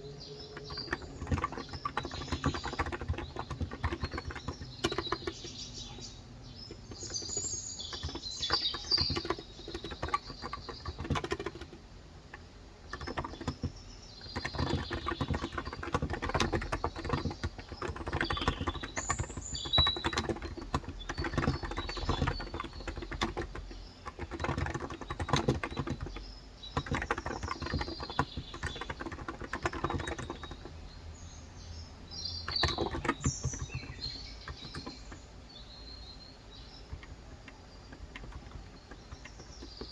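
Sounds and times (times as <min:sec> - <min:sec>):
keyboard keys clacking: 0:00.0 - 0:30.8, 0:32.4 - 0:39.9
birds chirping: 0:00.0 - 0:39.9.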